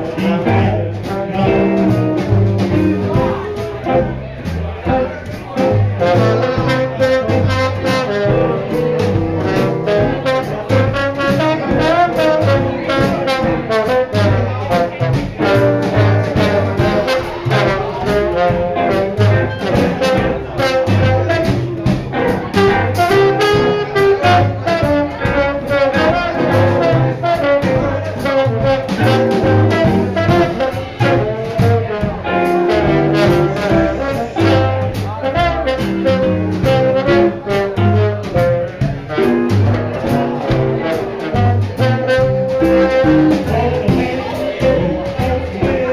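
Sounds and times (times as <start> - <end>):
swing band playing jazz: 0.0 - 45.9.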